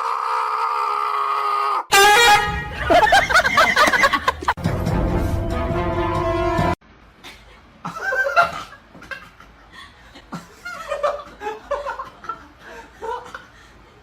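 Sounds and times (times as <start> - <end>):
person chuckling: 2.7 - 4.6.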